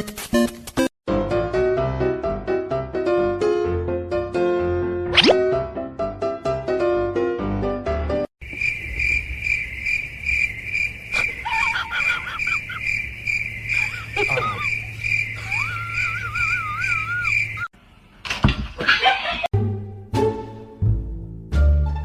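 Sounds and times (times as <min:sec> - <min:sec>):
insect chirping: 0:08.4 - 0:17.7
warbling whistled calls: 0:08.6 - 0:17.7.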